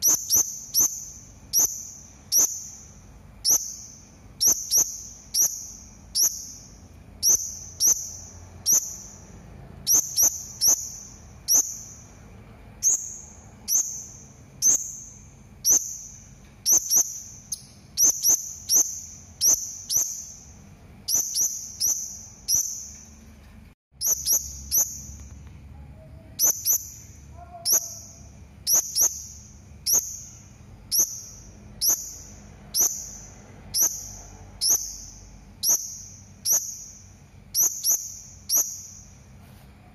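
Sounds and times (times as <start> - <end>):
parrot shrill calls: 26.3 - 29.3.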